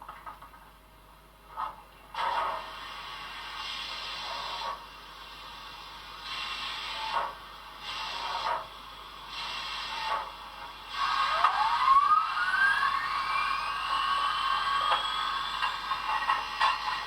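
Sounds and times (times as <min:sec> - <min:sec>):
steady steam hiss: 0:02.4 - 0:11.8, 0:12.4 - 0:17.0
pulsing steam hiss: 0:02.6 - 0:17.0
whine rising in pitch: 0:11.0 - 0:17.0.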